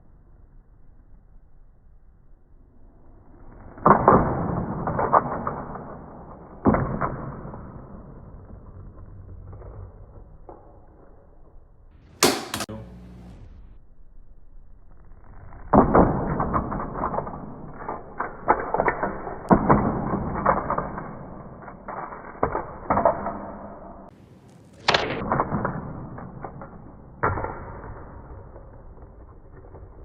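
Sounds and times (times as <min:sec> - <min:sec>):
toy truck thumping and clattering: 0:12.2 - 0:12.7.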